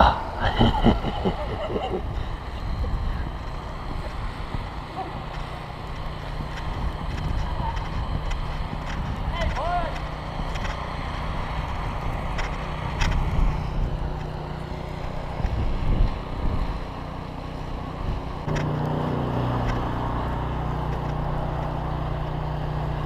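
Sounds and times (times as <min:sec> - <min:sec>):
wind buffeting microphone: 0:00.0 - 0:17.0
motor hum: 0:00.0 - 0:23.0.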